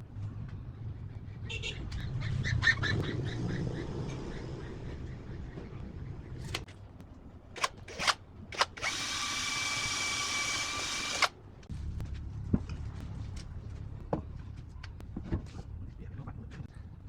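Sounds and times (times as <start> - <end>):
power tool motor whining: 7.6 - 11.3.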